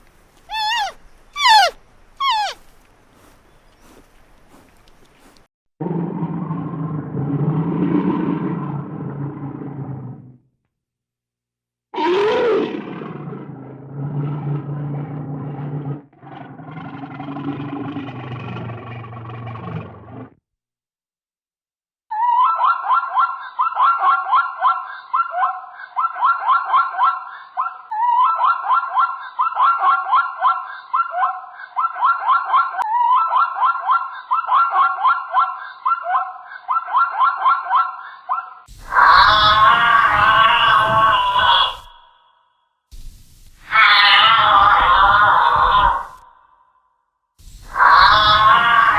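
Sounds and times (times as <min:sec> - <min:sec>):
animal chirping calls: 0:00.4 - 0:05.3
large animal roaring: 0:05.8 - 0:10.4, 0:12.0 - 0:20.3, 0:38.9 - 0:41.9.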